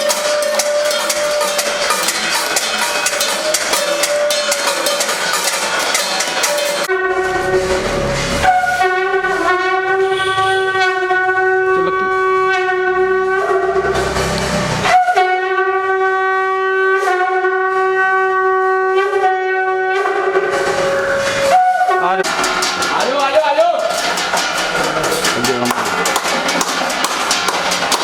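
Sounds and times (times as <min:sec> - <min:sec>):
conch shell blown: 0:00.0 - 0:05.8, 0:06.4 - 0:22.3.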